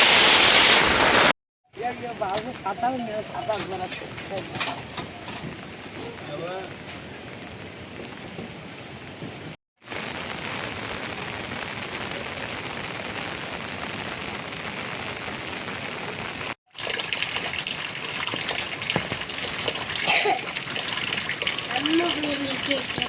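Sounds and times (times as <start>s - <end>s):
heavy rain hissing: 0.0s - 1.3s, 5.5s - 16.6s, 19.0s - 23.0s
raindrops spattering: 9.8s - 23.0s.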